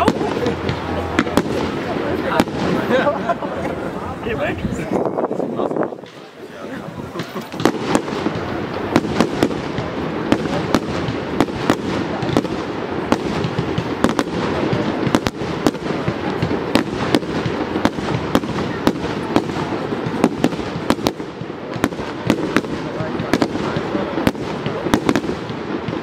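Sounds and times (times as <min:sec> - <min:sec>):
firework bangs: 0:00.0 - 0:26.0
firework crackle: 0:00.0 - 0:26.0.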